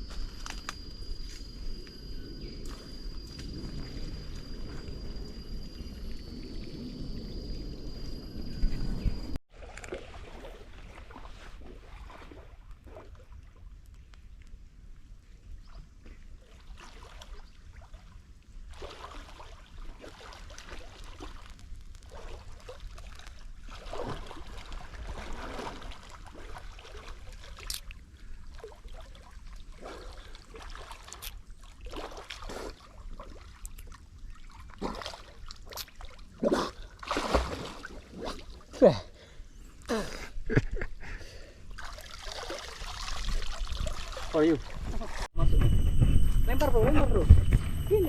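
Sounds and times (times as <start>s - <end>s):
water splashing around a boat: 9.5s - 13.8s, 15.7s - 38.8s, 41.8s - 45.6s
steady low rumble: 44.6s - 48.0s.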